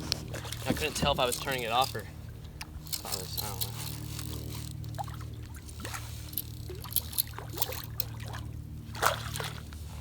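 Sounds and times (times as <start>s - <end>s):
steady low hum: 0.0s - 10.0s
water splashing and dripping: 5.0s - 9.7s.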